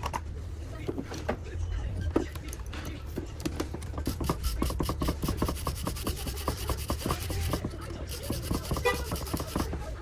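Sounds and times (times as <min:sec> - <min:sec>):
hand tool rasping on metal: 0:04.1 - 0:09.8.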